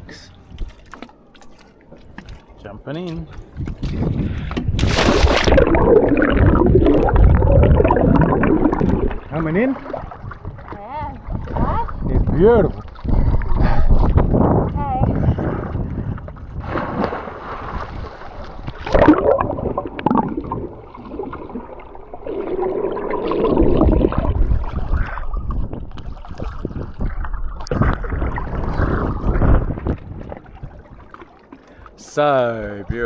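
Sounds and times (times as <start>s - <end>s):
sea water splashing around swimmers: 4.7s - 12.1s, 15.6s - 32.8s.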